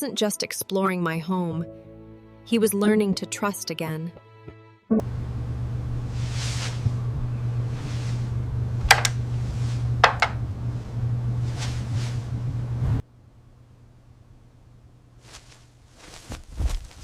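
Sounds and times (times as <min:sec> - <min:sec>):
low room hum: 0:05.0 - 0:17.0
soft hiss: 0:06.1 - 0:06.9, 0:13.4 - 0:17.0.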